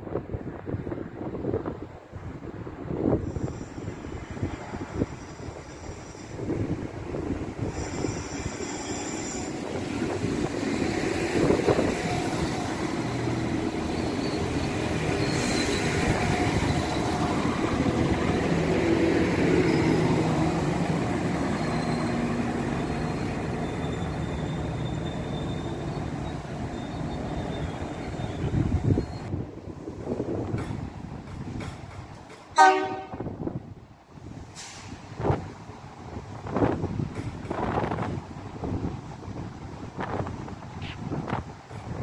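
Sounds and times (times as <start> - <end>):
train rumbling: 0.4 - 42.0
high brake squeals: 3.2 - 6.5, 7.6 - 9.7, 13.8 - 17.5, 21.2 - 29.3.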